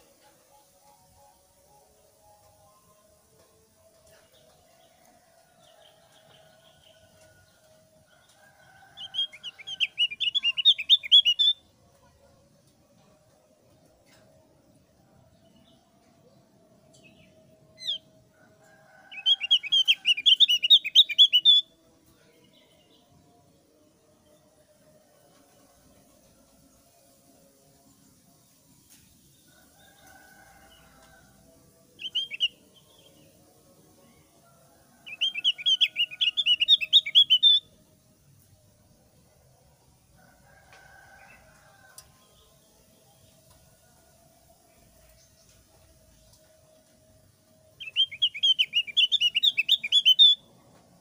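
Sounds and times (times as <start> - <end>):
bird twittering song: 9.0 - 11.6, 19.2 - 21.7, 32.0 - 33.2, 35.1 - 37.7, 47.7 - 50.4.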